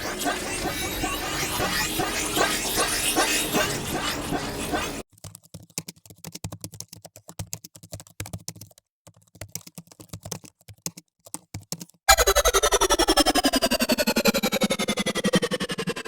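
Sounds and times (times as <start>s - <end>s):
rapid irregular clicking: 0.0s - 12.0s
fast-pulsing falling pitch sweep: 12.1s - 16.0s.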